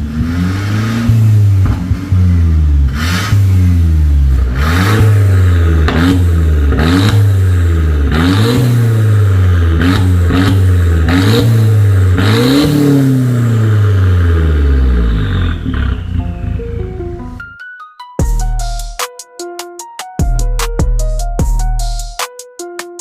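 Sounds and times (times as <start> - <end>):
car exhaust revving in short blips: 0.0 - 16.6.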